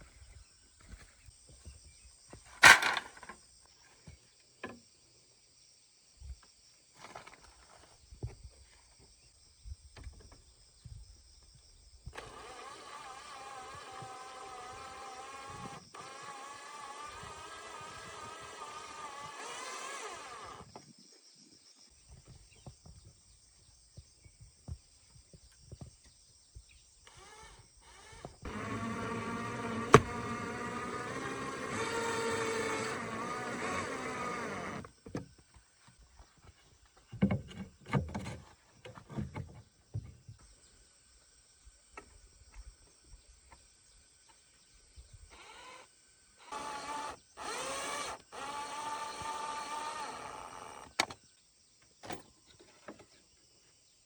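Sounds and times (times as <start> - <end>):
small motor running: 12.2 - 20.6, 27.1 - 34.9, 46.4 - 50.9.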